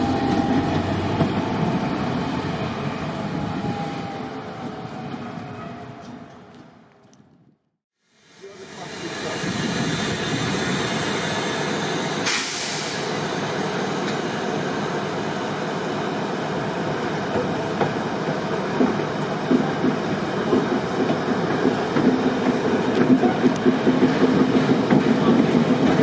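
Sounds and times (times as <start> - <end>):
train rumbling on rails: 0.0 - 7.4, 8.3 - 26.0
burst of hiss: 10.9 - 13.2.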